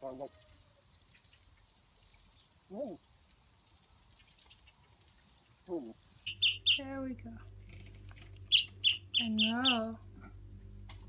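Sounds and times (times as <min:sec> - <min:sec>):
high-pitched insect chirring: 0:00.0 - 0:06.8, 0:08.5 - 0:09.8
soft rising-and-falling calls: 0:06.3 - 0:06.8, 0:08.5 - 0:09.8.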